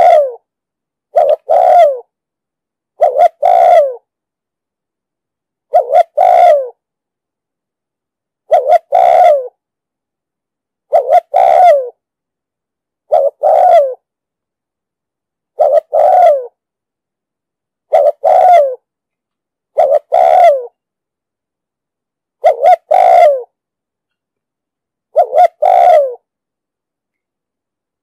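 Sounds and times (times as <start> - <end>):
dove cooing: 0.0 - 0.4, 1.1 - 2.1, 3.0 - 4.1, 5.7 - 6.8, 8.5 - 9.6, 10.9 - 12.0, 13.1 - 14.0, 15.6 - 16.6, 17.9 - 18.9, 19.7 - 20.8, 22.4 - 23.6, 25.1 - 26.3.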